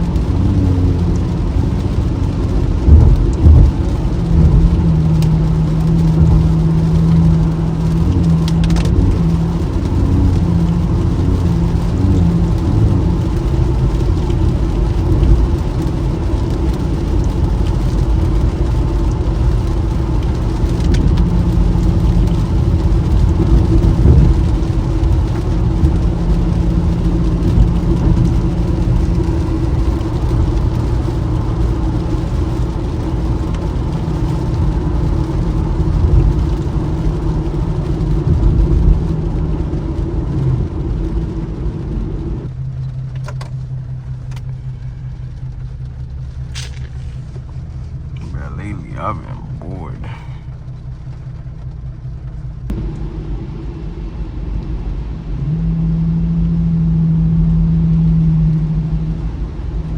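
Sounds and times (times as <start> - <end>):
car engine hum: 0.0 - 59.9
tyre and road noise on wet road: 0.0 - 59.9.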